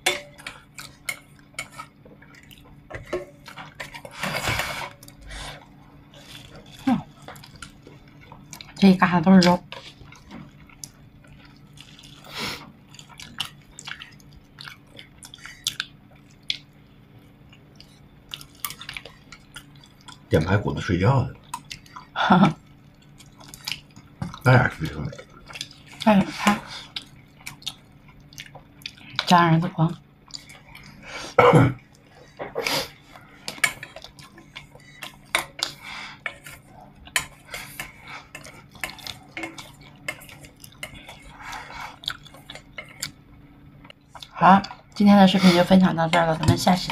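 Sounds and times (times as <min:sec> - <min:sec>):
person chewing: 0:00.2 - 0:08.8, 0:09.7 - 0:16.8, 0:17.4 - 0:20.3, 0:22.9 - 0:29.3, 0:30.2 - 0:31.1, 0:31.8 - 0:43.2.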